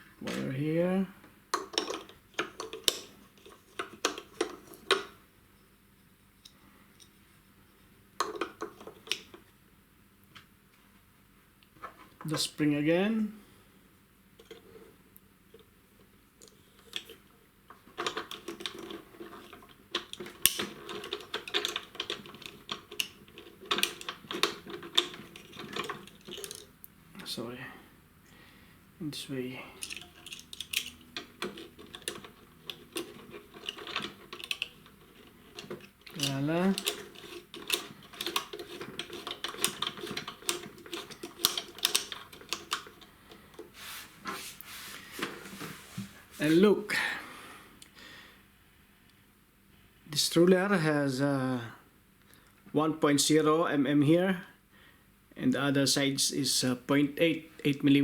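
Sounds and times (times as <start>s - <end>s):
small parts clicking and rattling: 1.5s - 5.2s, 8.2s - 9.4s, 16.4s - 26.8s, 29.8s - 43.8s
small plastic and metal clicks: 29.8s - 43.1s.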